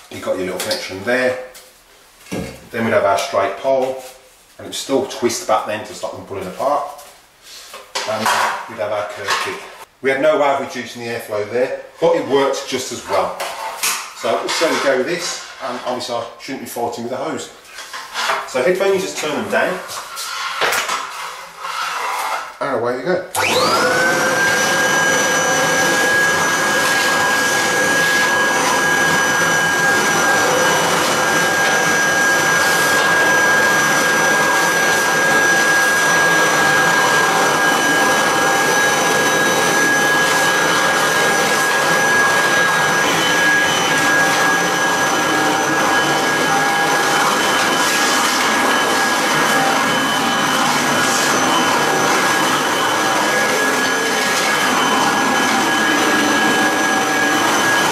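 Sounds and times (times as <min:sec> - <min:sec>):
vacuum cleaner running: 0:23.3 - 0:57.9.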